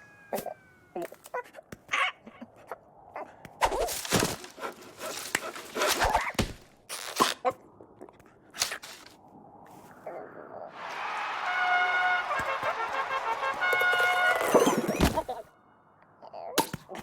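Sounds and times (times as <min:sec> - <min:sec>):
cartoon grunts and squawks: 0:00.3 - 0:03.4, 0:16.2 - 0:17.0.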